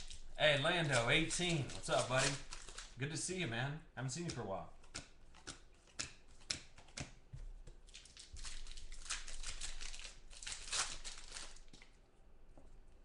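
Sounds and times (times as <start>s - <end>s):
cards being handled: 0.0s - 3.0s
wrappers crinkling and tearing: 0.0s - 3.0s, 7.8s - 12.0s.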